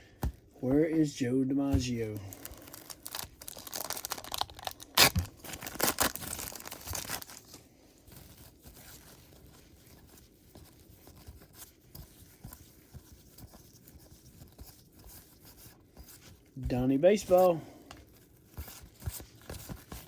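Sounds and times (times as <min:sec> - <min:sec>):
cards rustling and clicking: 0:01.7 - 0:20.0
wrapper tearing and crinkling: 0:02.2 - 0:07.6.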